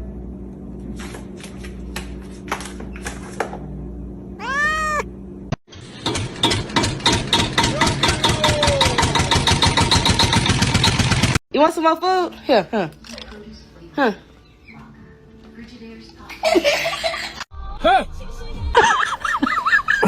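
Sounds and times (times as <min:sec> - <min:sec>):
cat meowing: 0:04.4 - 0:05.1.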